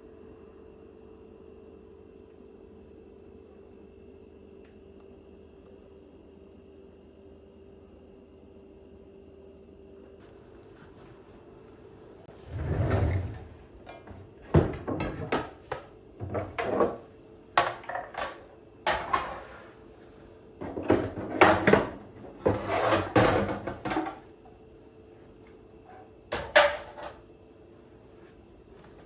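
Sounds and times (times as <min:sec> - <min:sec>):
knocks and clicks of household items: 0:13.9 - 0:17.0, 0:17.6 - 0:19.3, 0:20.6 - 0:24.2, 0:26.3 - 0:27.2.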